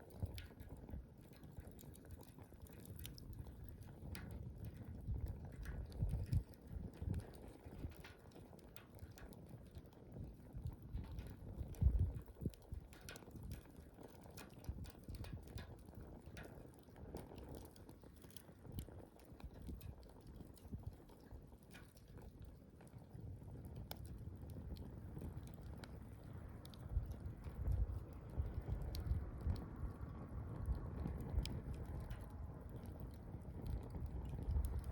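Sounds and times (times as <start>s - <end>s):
campfire crackling and popping: 0.0s - 34.9s
low uneven rumble: 23.6s - 34.9s.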